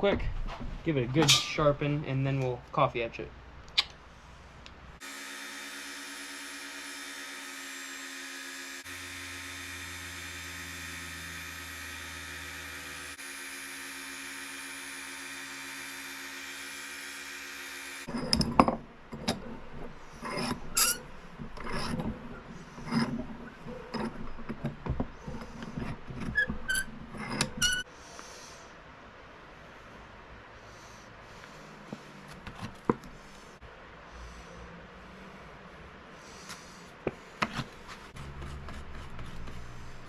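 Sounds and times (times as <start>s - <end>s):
electric motor hum: 5.0s - 18.6s
metal scraping: 18.0s - 27.9s.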